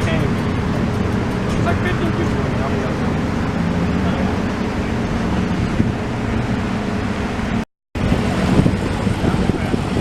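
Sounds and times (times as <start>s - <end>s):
car engine idling: 0.0s - 10.0s
wind noise on microphone: 0.0s - 10.0s.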